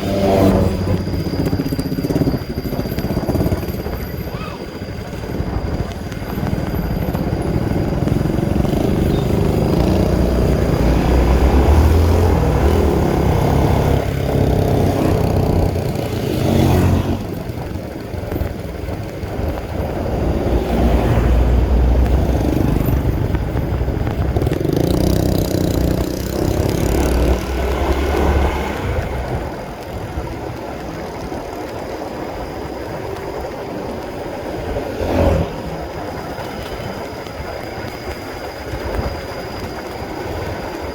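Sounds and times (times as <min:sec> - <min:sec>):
motorcycle engine revving: 0:00.0 - 0:02.4, 0:06.5 - 0:30.3, 0:33.8 - 0:37.2.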